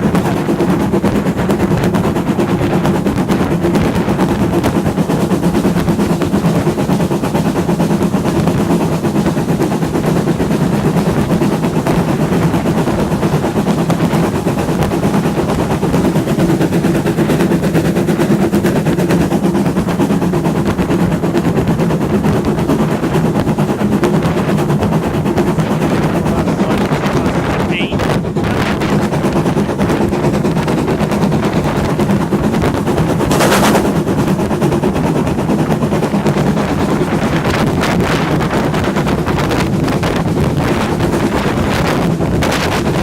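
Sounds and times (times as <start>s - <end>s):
low drone: 0.0s - 43.0s
steam train rattling clatter: 0.0s - 43.0s.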